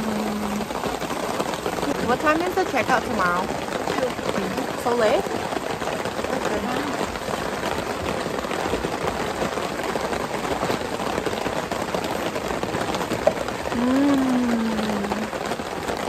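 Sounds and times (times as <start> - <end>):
rain drumming on a tarp: 0.0 - 16.0
person humming: 13.8 - 15.4.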